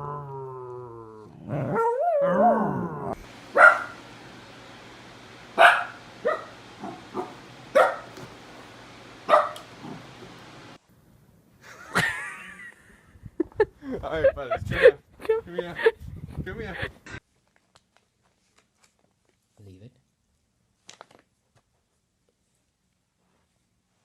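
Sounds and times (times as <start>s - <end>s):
dog howling: 0.0s - 3.9s
dog barking: 3.5s - 4.0s, 5.6s - 8.2s, 9.3s - 9.7s.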